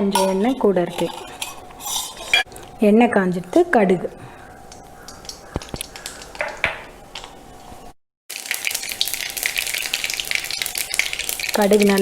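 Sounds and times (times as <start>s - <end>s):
seeds crackling in hot oil: 4.7s - 7.4s, 8.3s - 12.0s.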